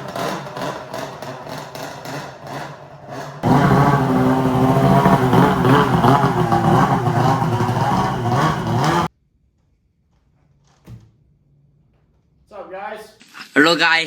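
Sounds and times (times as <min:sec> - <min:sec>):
snowmobile engine running: 0:03.4 - 0:09.1.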